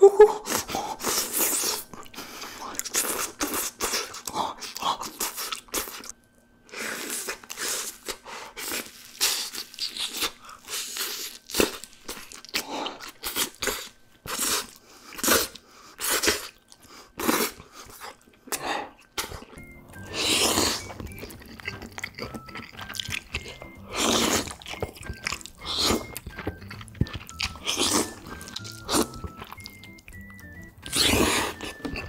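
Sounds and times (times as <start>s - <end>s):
person crunching fried chicken: 6.9s - 19.6s, 20.2s - 32.0s.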